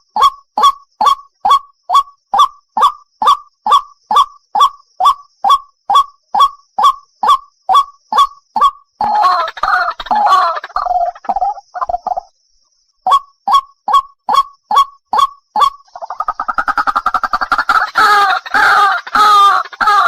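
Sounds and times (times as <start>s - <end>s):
bird calls: 0.0s - 12.4s, 13.0s - 20.0s
fast jumbled bird chatter: 8.1s - 12.3s, 15.5s - 20.0s.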